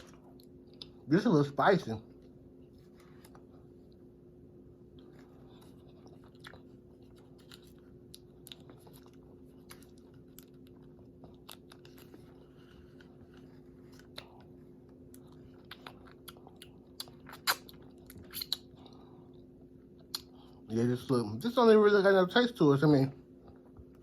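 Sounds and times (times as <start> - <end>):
person chewing crispy food: 0.0 - 1.1, 4.7 - 20.7
low steady hum: 0.0 - 24.0.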